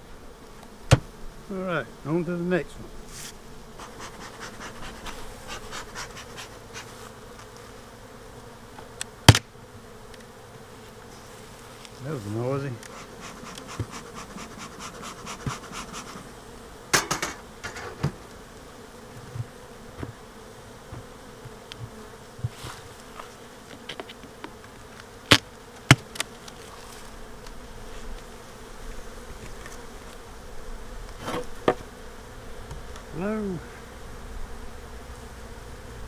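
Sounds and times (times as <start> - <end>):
honeybees humming: 0.0 - 36.0.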